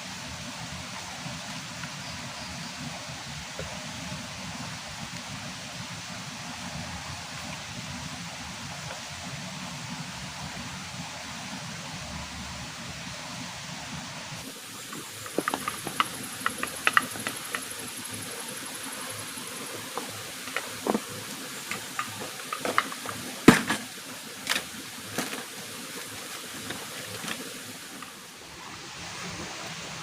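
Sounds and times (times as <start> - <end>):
rain hissing: 0.0 - 30.0
sharp clicks and knocks: 14.9 - 17.8, 19.8 - 25.5.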